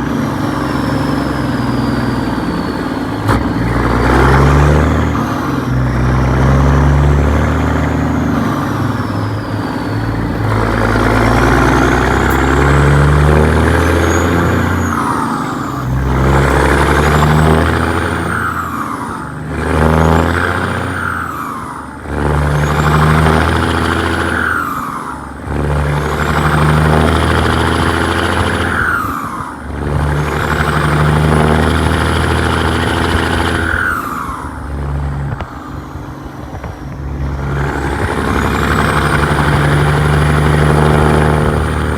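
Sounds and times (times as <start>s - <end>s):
diesel engine pulling hard: 0.0s - 41.9s.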